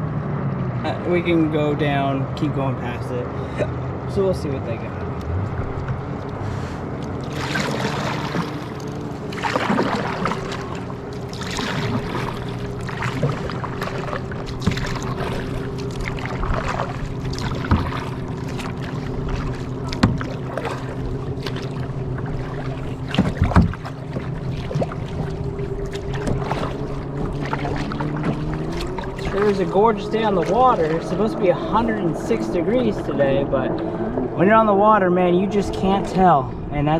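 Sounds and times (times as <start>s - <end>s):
steady low hum: 0.8s - 36.9s
paddle splashing in water: 5.0s - 34.0s
paddle knocking against hull: 7.1s - 31.1s.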